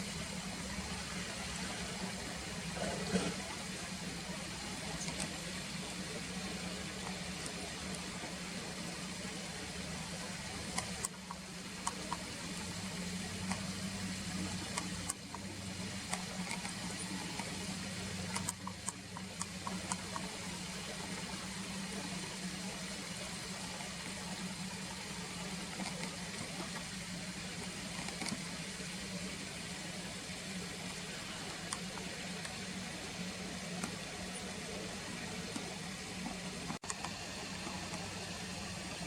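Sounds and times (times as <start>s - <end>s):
steady hiss: 0.0s - 39.0s
faint clicks: 9.1s - 22.5s, 30.0s - 32.8s.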